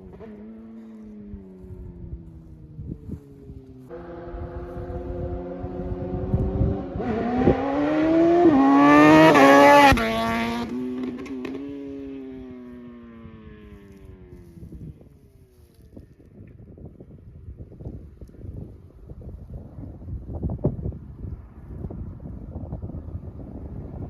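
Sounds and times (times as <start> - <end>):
sport motorcycle accelerating past: 0.0 - 15.1.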